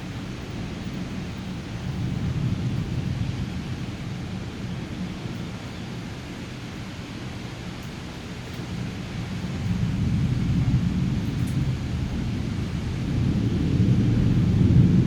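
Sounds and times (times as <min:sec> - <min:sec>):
thunder rumbling: 0:09.2 - 0:15.0.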